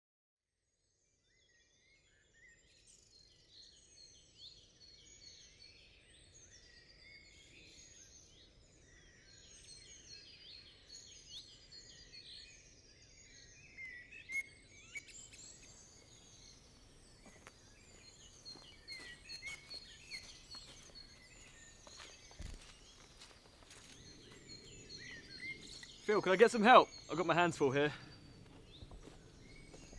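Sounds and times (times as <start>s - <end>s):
birds chirping and trilling: 1.4s - 29.9s
footsteps snapping twigs: 17.2s - 24.4s.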